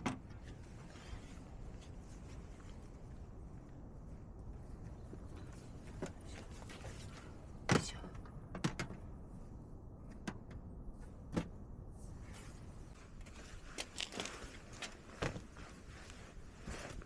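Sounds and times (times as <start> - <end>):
knocks and clunks: 7.7 - 9.1.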